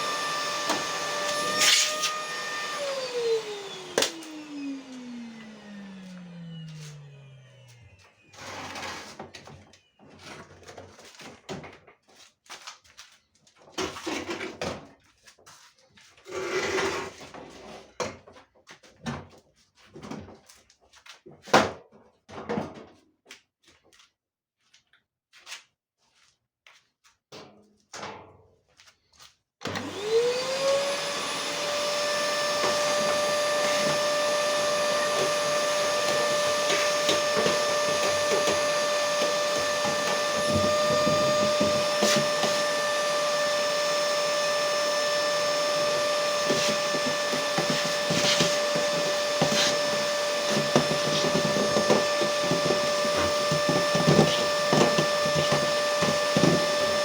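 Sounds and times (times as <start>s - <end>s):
electric motor whining: 0.0s - 8.7s, 29.7s - 57.0s.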